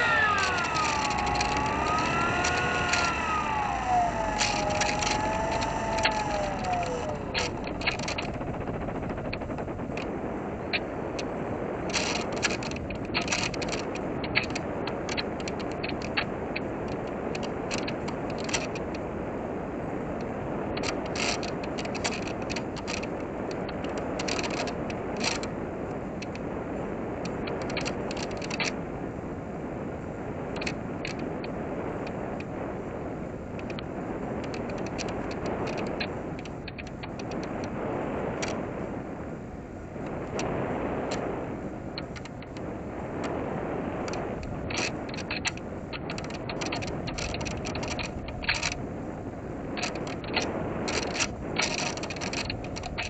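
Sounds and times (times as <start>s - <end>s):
light clicks and ticks: 0.0s - 10.1s, 11.9s - 16.3s, 20.2s - 26.5s, 27.2s - 28.8s, 30.6s - 32.5s, 33.6s - 38.6s, 40.0s - 41.4s, 42.0s - 43.4s, 44.0s - 48.8s, 49.8s - 53.0s
short ticks: 0.0s - 10.1s
airflow rushing: 0.0s - 11.8s
airflow rushing over model plane: 0.0s - 53.0s.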